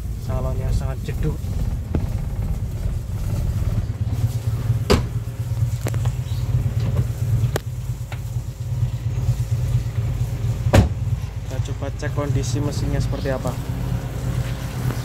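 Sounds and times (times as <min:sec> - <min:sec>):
car engine idling: 0:00.0 - 0:15.0
sharp knocks: 0:01.1 - 0:05.3, 0:10.7 - 0:11.0.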